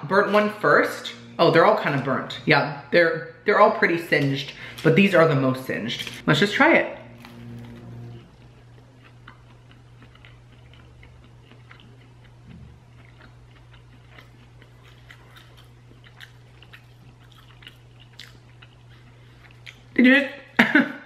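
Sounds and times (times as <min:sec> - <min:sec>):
low steady hum: 0:00.0 - 0:21.0
chewing crunching: 0:07.2 - 0:20.0.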